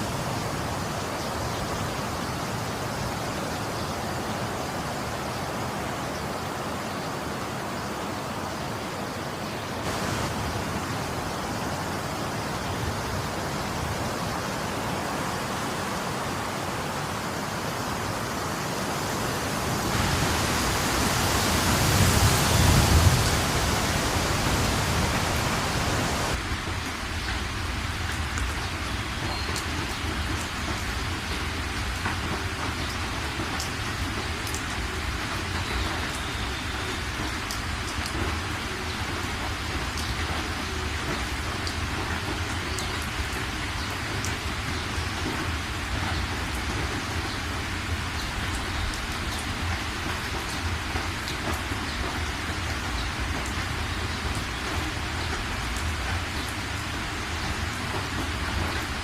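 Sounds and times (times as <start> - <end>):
heavy rain: 0.0 - 59.0
raindrops ticking: 26.3 - 59.0.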